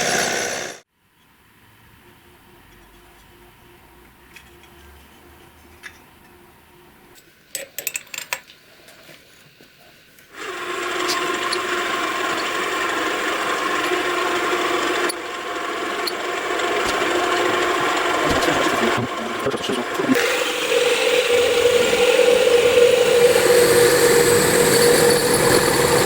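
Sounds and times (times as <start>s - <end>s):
motor hum: 10.4s - 26.0s
power tool grinding metal: 10.4s - 26.0s.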